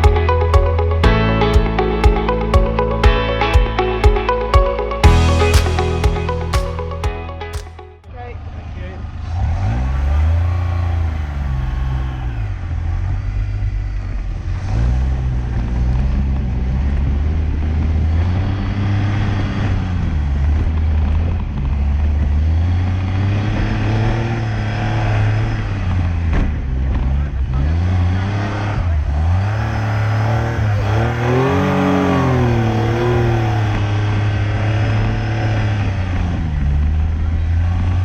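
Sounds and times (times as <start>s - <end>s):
car engine revving through gears: 8.4s - 38.0s.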